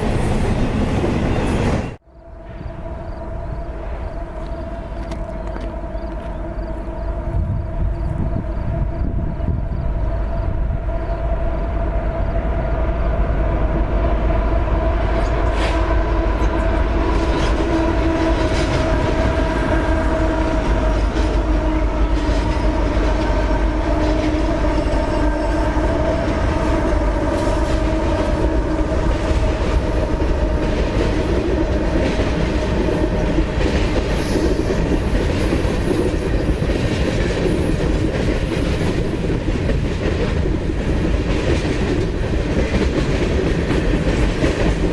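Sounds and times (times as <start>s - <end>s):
freight train rumbling: 0.0s - 44.9s.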